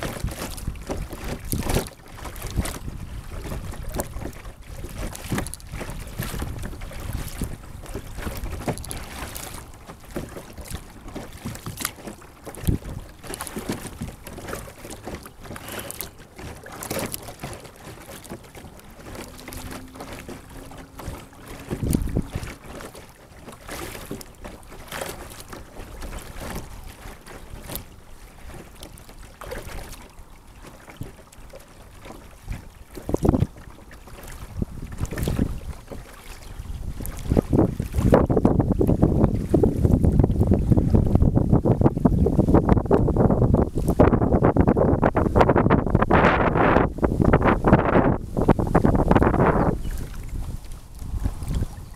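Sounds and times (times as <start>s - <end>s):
wind buffeting microphone: 0.0s - 23.0s, 32.3s - 51.9s
paddle splashes in water: 0.0s - 51.9s.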